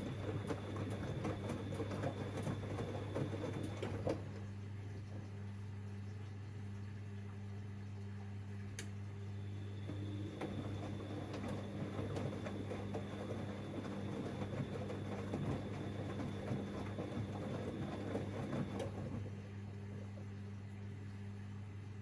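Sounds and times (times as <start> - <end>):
washing machine drum tumbling laundry: 0.0 - 5.4, 9.7 - 19.6.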